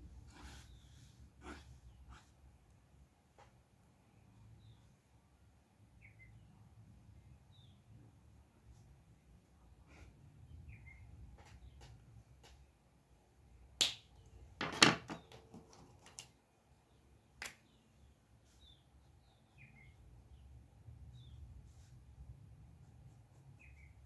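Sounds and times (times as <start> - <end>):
faint bird chirps: 5.9 - 6.6, 23.5 - 24.0.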